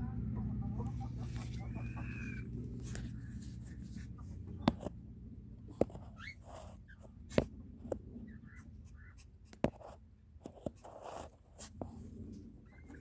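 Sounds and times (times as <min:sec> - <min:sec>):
scratchy rustling: 0:02.5 - 0:05.0, 0:08.8 - 0:12.1.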